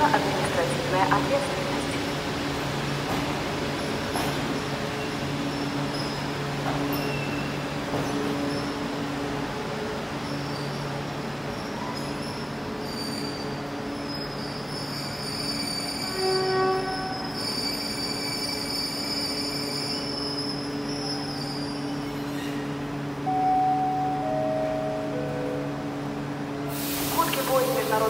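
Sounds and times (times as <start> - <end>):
train coaches rolling: 0.0 - 28.0
brakes and wheels squealing: 11.5 - 16.2, 17.2 - 22.8.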